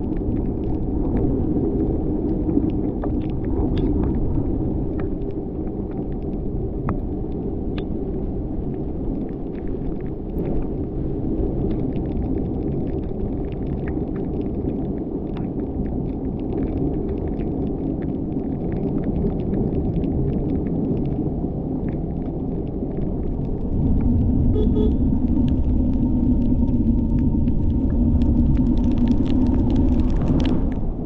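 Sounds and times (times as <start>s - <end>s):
car engine and tyres rumbling: 22.9s - 31.0s.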